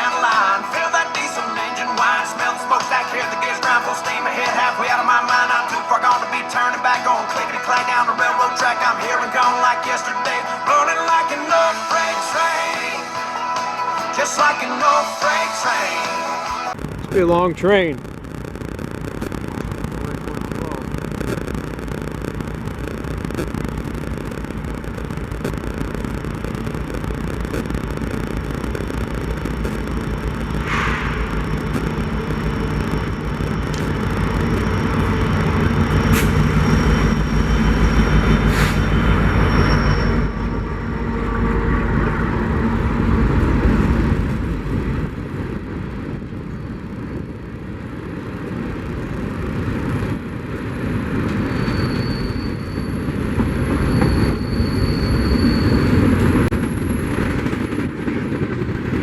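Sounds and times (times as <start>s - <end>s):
diesel locomotive engine droning: 21.8s - 59.0s
train cars rumbling and clattering: 27.9s - 59.0s
high rail squeals: 30.4s - 58.3s.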